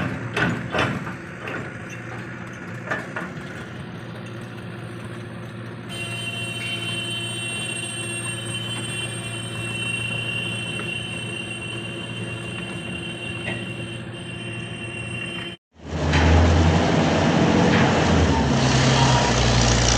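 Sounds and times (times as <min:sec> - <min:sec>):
high-pitched whine: 0:05.9 - 0:16.3.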